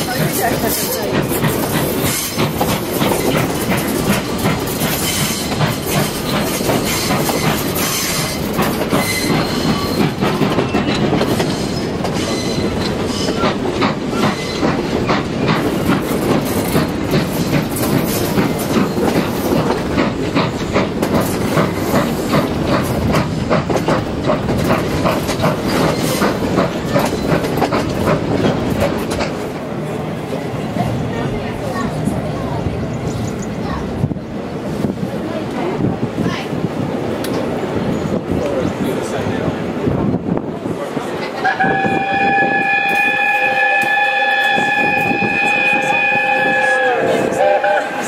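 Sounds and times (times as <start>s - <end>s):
steady train rumble: 0.0s - 48.0s
train wheels clicking on track: 0.0s - 48.0s
high wheel squeal: 6.8s - 13.4s.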